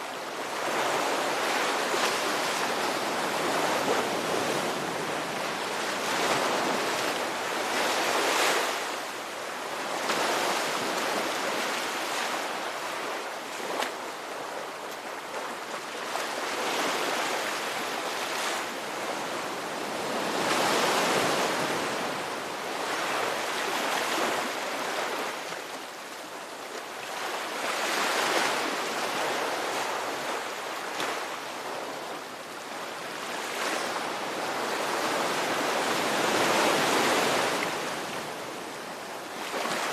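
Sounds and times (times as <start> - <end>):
ocean waves breaking: 27.0 - 39.9.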